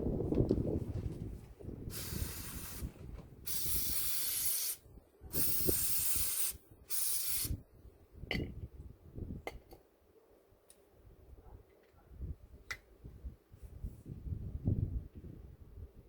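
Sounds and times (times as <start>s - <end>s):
hissing spray bursts: 1.9s - 2.9s, 3.5s - 7.6s.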